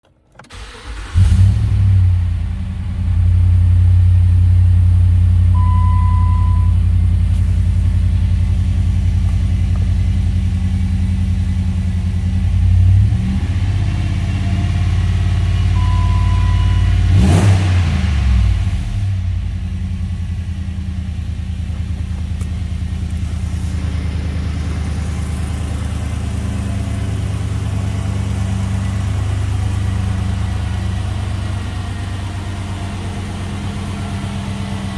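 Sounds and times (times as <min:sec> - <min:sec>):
car engine revving and idling: 0:00.4 - 0:34.9
short steady beep: 0:05.6 - 0:06.8, 0:15.7 - 0:17.1.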